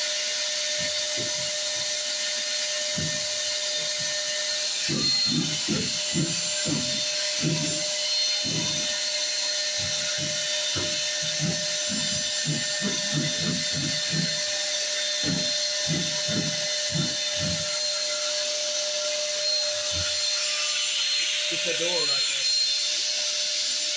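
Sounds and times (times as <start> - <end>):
shop vac whining: 0.0 - 22.5
suction fluttering pulses: 0.7 - 17.8.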